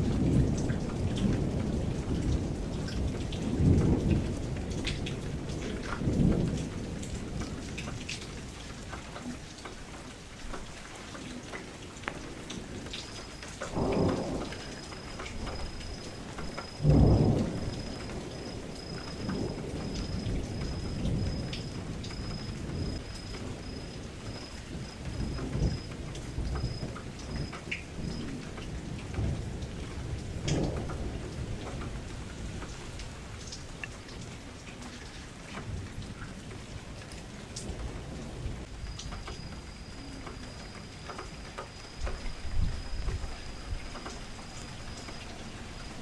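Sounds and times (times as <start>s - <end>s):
thunder rumbling: 0.0s - 8.6s, 11.4s - 34.4s
rain against a window: 0.0s - 46.0s.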